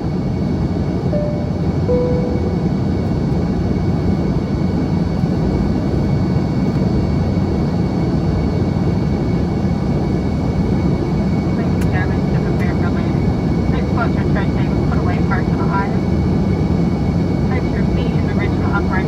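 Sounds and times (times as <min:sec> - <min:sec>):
aircraft cabin drone: 0:00.0 - 0:19.0
short faint tones: 0:01.2 - 0:02.9.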